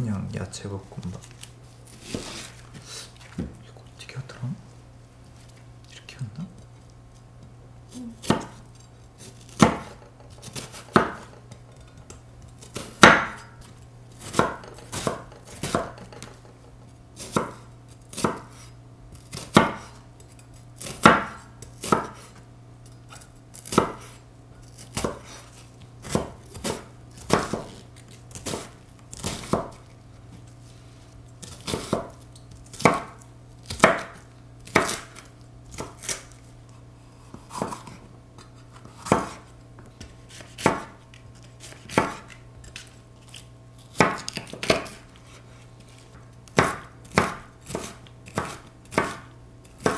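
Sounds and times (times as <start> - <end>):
steady low hum: 0.0 - 49.9
knife chopping on cutting board: 8.0 - 16.6, 17.2 - 22.4, 23.1 - 29.9, 31.4 - 36.4, 37.2 - 45.5, 46.1 - 49.9.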